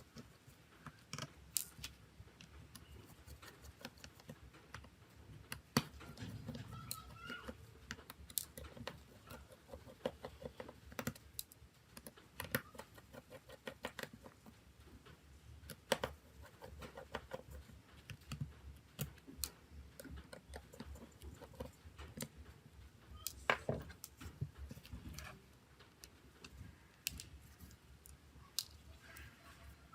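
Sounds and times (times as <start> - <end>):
hand tools clicking and tapping: 0.0 - 28.8.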